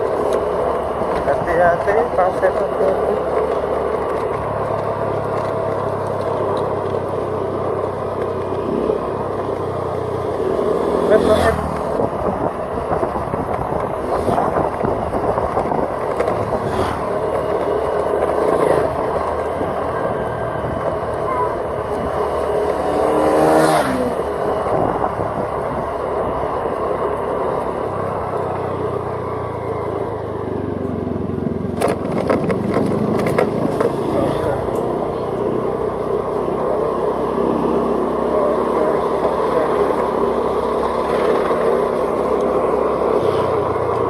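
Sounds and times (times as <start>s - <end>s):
passing vehicle engine: 0.0s - 44.0s
vehicle road and engine noise: 0.0s - 44.0s.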